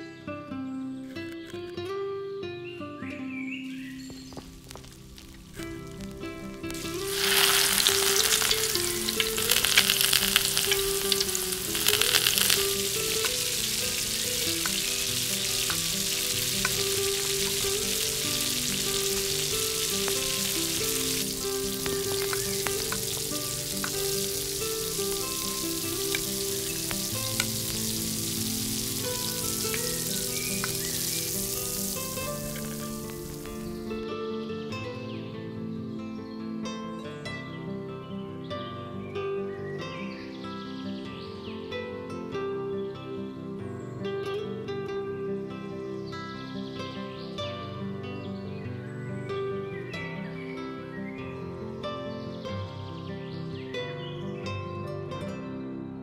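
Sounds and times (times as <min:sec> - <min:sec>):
gentle melodic music: 0:00.0 - 0:56.0
food sizzling in a pan: 0:03.7 - 0:33.9.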